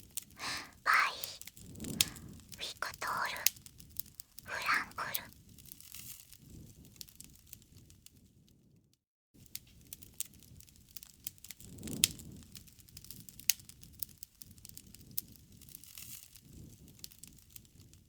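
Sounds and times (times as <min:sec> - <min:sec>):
wood fire crackling and popping: 0:09.4 - 0:18.0.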